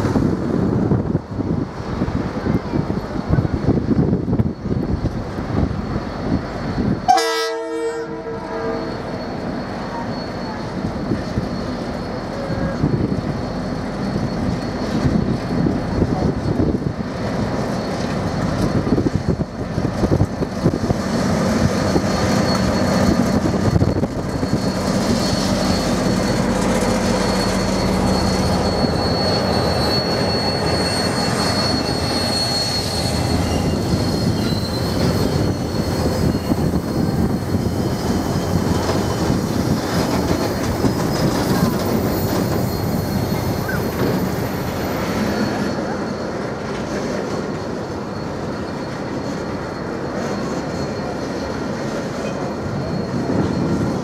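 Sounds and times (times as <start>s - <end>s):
wheels rumbling on rail: 0.0s - 54.0s
high wheel squeal: 2.4s - 54.0s
locomotive horn blast: 7.1s - 9.0s
locomotive engine running: 8.9s - 54.0s.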